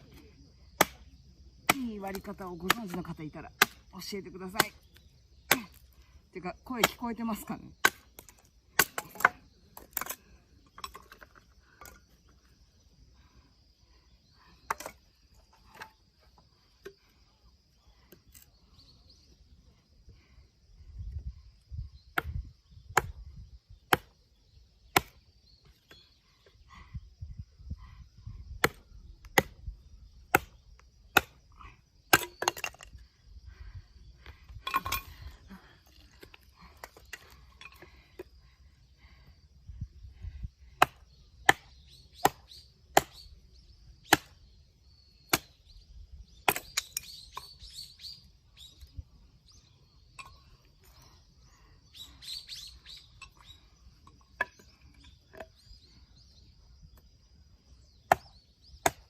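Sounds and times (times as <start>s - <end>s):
hatchet chopping wood: 0.8s - 3.9s, 7.8s - 10.2s, 22.1s - 23.2s, 23.9s - 24.2s, 24.9s - 25.2s, 28.6s - 29.7s, 30.3s - 31.4s, 32.1s - 32.9s, 40.8s - 43.2s, 44.1s - 44.4s, 45.2s - 45.6s, 46.4s - 47.1s, 58.0s - 59.0s.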